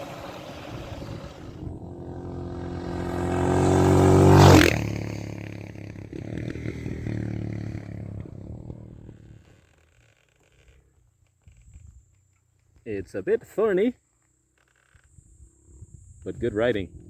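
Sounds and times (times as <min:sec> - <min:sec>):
dirt bike engine passing by: 0:00.0 - 0:10.1.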